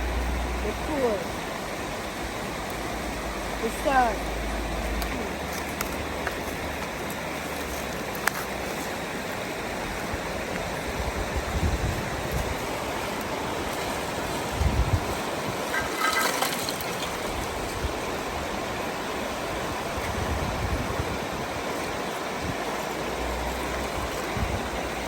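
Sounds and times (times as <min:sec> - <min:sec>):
river water flowing: 0:00.0 - 0:25.0
short rattle: 0:15.7 - 0:17.8.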